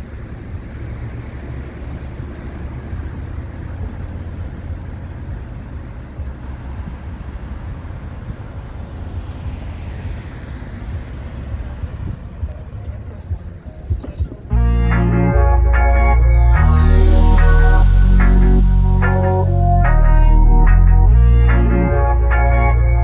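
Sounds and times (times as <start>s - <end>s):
car engine and road rumble: 0.0s - 23.0s
wind noise on microphone: 6.2s - 14.6s.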